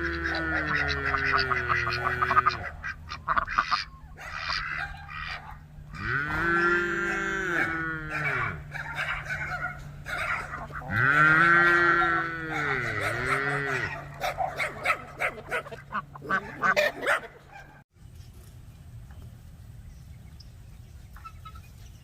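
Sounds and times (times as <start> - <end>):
steady low hum: 0.0 - 16.8
farm animal calling: 0.0 - 17.8, 21.1 - 21.9.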